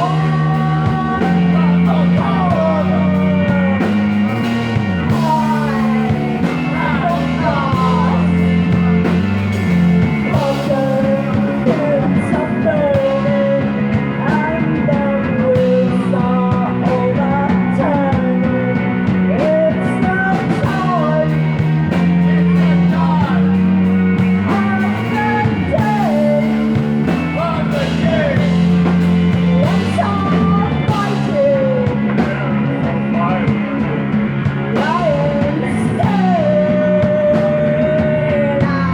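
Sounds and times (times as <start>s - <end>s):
psychedelic rock music: 0.0s - 38.9s.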